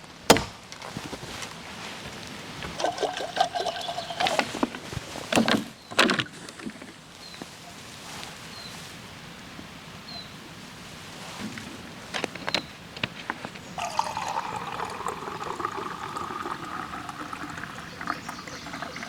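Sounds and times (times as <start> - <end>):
logs knocking: 0.3 - 1.1
faint bird chirps: 7.2 - 8.8, 10.0 - 10.4, 17.6 - 19.0.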